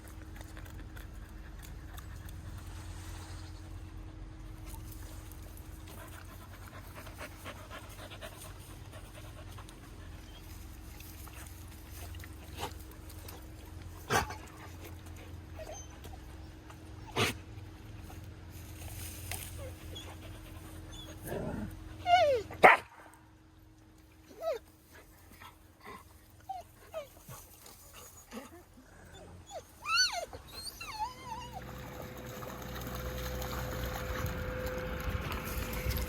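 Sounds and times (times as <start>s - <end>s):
steady low hum: 0.0s - 36.0s
dogs panting: 0.1s - 3.2s, 4.1s - 18.4s, 19.6s - 21.2s.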